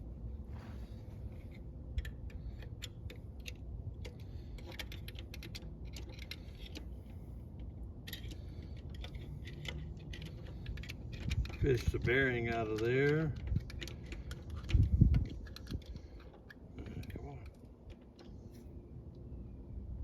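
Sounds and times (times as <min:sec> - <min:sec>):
steady low hum: 0:00.0 - 0:20.0
metallic clicks of hand tools: 0:08.0 - 0:18.3.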